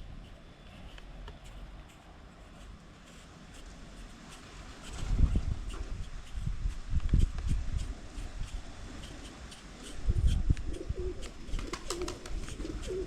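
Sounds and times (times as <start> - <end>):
dove cooing: 10.7 - 13.0.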